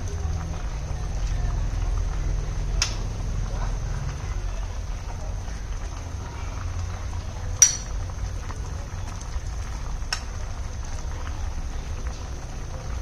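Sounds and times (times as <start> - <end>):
metal utensil clinking on cookware: 7.6 - 8.0.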